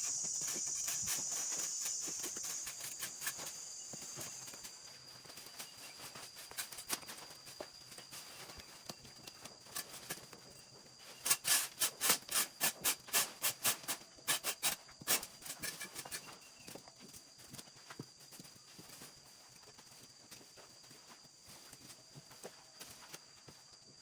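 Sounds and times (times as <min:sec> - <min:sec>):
sharp rubbing or scraping strokes: 0:00.0 - 0:04.4
high insect trill: 0:00.0 - 0:24.0.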